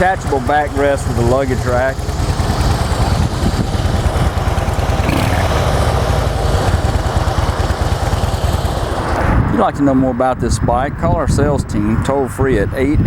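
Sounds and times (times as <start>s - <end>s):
motorcycle engine idling: 0.0s - 9.6s.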